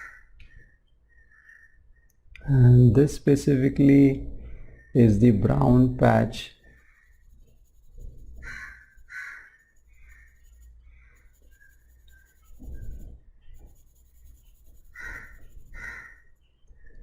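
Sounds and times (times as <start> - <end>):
pencil scratching on paper: 6.6 - 16.4.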